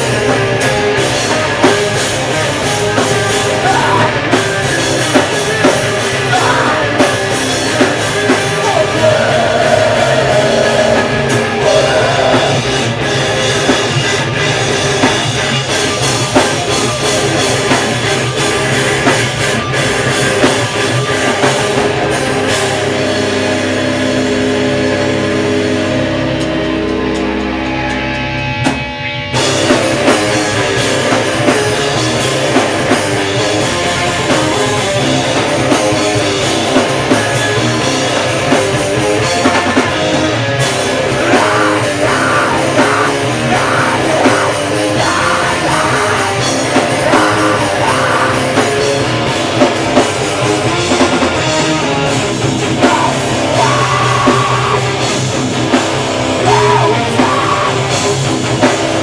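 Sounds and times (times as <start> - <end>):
bass guitar: 0.0 - 59.0
distorted guitars: 0.0 - 59.0
drum kit: 0.0 - 59.0
vocals: 2.6 - 14.3, 32.6 - 59.0.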